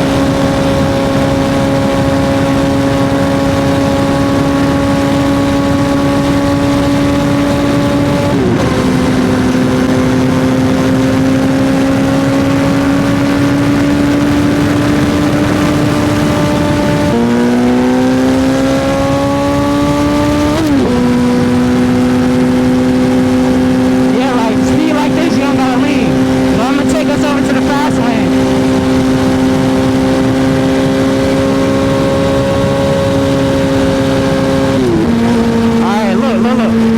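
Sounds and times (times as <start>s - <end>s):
wind noise: 0.0s - 36.9s.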